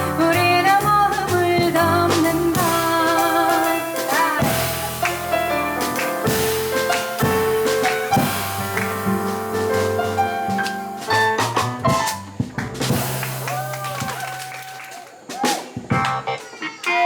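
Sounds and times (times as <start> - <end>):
walking double bass: 0.0 - 13.8
piano chords and lines: 0.0 - 14.1
brushed drums: 0.0 - 16.6.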